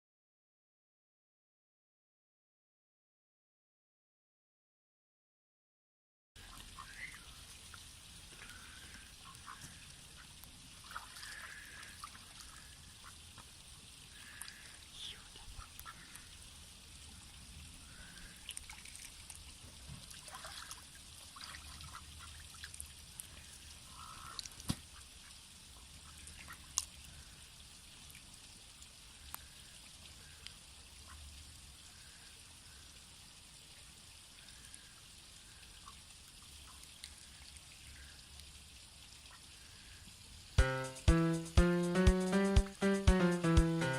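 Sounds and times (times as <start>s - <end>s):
ducks quacking softly: 6.4s - 7.4s, 8.4s - 13.4s, 14.1s - 16.4s, 23.9s - 26.8s
faint trickling water: 6.4s - 40.6s.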